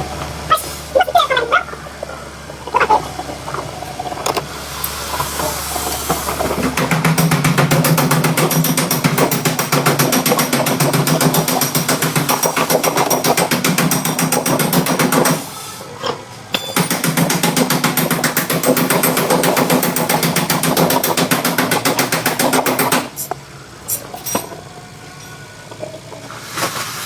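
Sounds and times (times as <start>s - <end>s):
rapid mechanical hammering: 5.1s - 15.6s, 16.5s - 23.4s.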